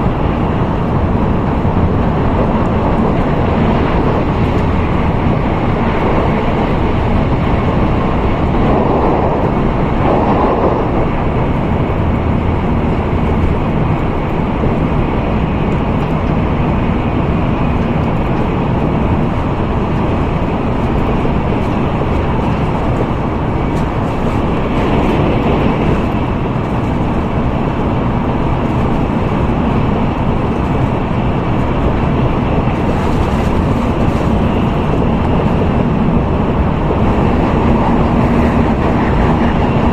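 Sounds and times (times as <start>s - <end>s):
train rumbling inside passenger car: 0.0s - 39.9s.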